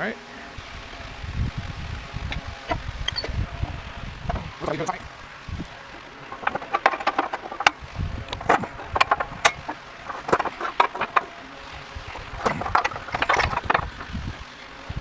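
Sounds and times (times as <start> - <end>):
metal parts clinking and knocking: 2.3 - 14.9.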